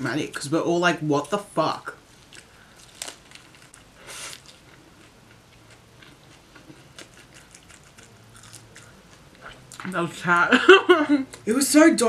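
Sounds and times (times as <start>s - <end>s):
crunchy bite of bread roll: 2.3s - 5.1s
quiet chewing with clicks: 4.4s - 9.9s.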